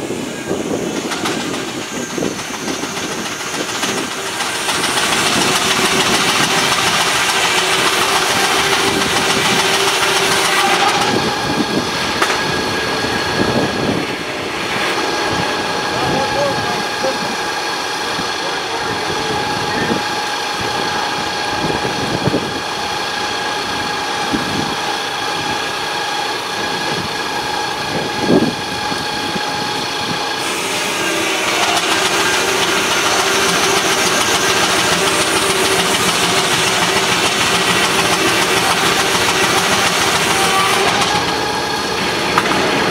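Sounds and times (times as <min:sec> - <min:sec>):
circular saw whine: 0:00.0 - 0:42.9
saw blade cutting log: 0:02.1 - 0:12.5, 0:30.4 - 0:42.9.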